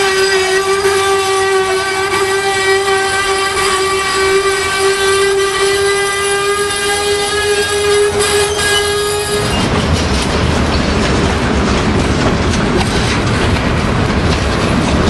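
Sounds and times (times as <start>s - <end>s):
rumble of rolling train cars: 0.0s - 15.0s
train wheels squealing: 2.6s - 9.8s.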